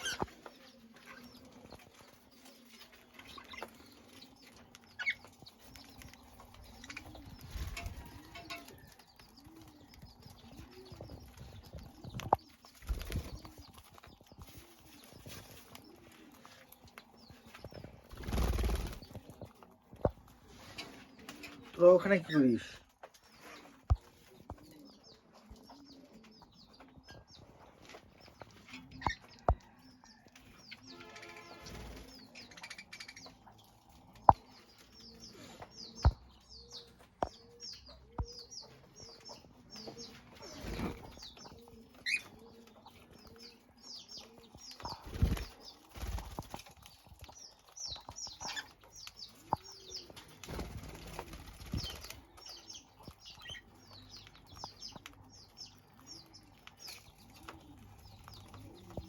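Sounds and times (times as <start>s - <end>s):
parrots chirping and chattering: 0.0s - 59.0s
wings flapping: 10.5s - 16.2s, 17.5s - 19.4s, 44.8s - 47.3s, 50.1s - 52.6s.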